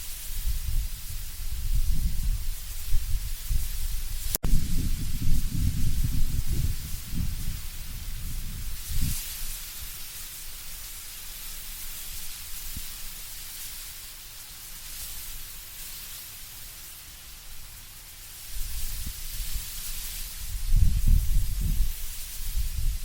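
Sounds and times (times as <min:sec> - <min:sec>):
low rumble of wind: 0:00.0 - 0:10.9, 0:18.5 - 0:23.0
leaves rustling in wind: 0:00.0 - 0:23.0.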